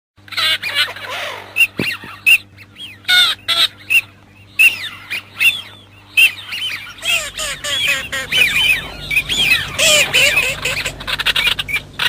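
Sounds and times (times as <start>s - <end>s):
teal whistled calls: 0.3s - 12.0s.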